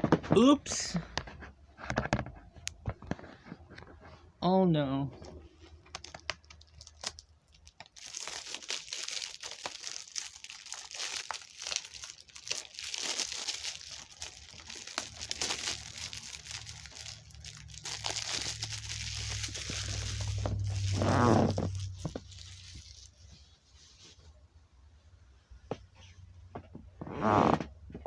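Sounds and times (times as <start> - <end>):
plastic shrink-wrap crinkling: 5.2 - 24.3.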